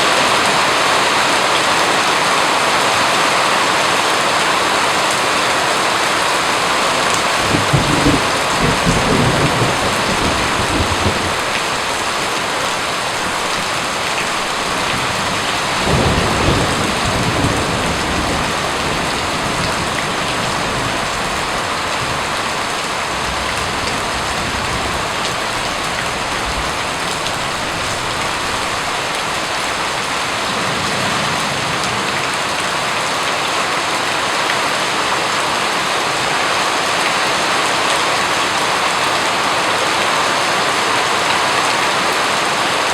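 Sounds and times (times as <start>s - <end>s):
heavy rain falling: 0.0s - 42.9s
low thunder rumbling: 7.0s - 32.2s.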